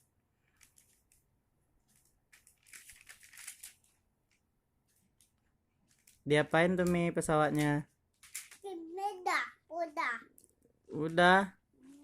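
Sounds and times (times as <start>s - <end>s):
faint crinkling and rustling: 0.2s - 8.8s.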